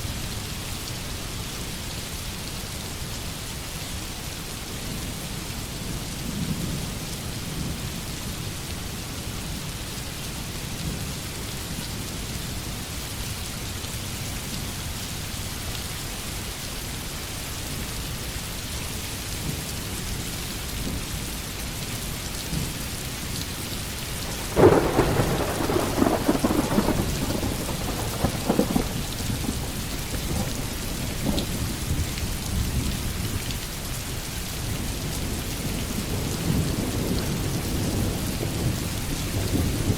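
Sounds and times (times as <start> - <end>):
heavy rain pouring: 0.0 - 39.9
thunder clap: 24.2 - 32.0.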